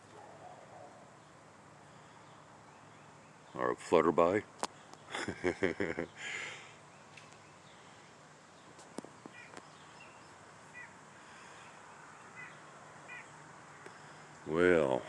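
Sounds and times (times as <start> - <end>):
faint bird chirps: 6.0 - 14.2.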